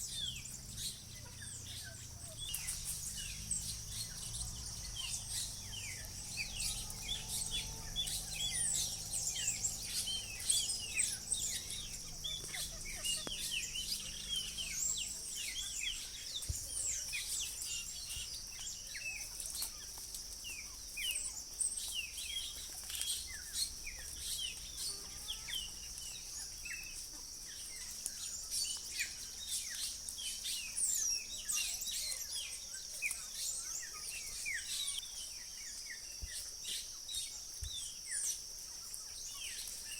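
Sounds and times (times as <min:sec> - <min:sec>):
birds chirping: 0:00.0 - 0:39.9
high-pitched insect drone: 0:01.7 - 0:15.8.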